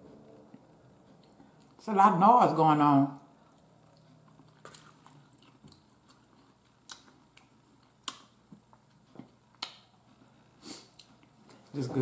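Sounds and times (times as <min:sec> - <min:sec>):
quiet chewing of food: 0:00.2 - 0:01.8, 0:03.2 - 0:11.8.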